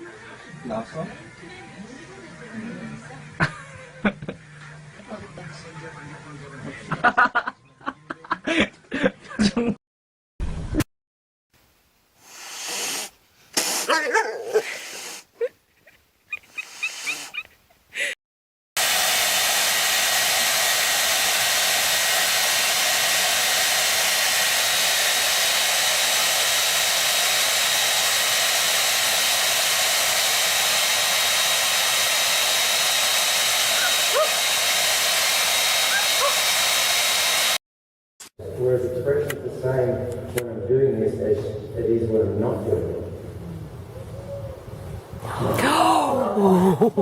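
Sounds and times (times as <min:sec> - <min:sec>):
loud steady rushing hiss: 0:11.9 - 0:13.9, 0:18.8 - 0:37.6
animal whines and cries: 0:15.8 - 0:17.6, 0:35.9 - 0:36.4.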